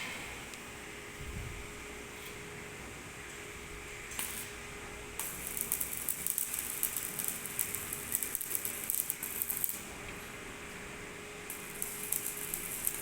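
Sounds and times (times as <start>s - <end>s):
welding arc crackle: 4.1s - 4.6s, 5.2s - 10.4s, 11.4s - 13.0s.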